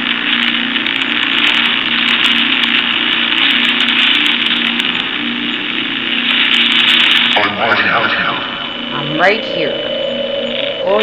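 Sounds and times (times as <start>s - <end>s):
scattered clicks: 0.0s - 7.9s
radio static hiss: 0.0s - 11.0s
wavering buzz: 0.0s - 11.0s.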